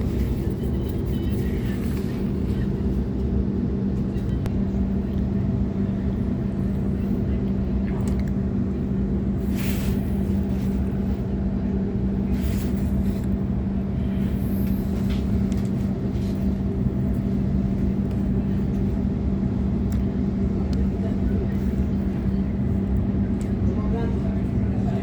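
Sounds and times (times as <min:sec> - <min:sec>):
constant low hum: 0:00.0 - 0:25.0
train wheels rumbling on rails: 0:08.1 - 0:25.0.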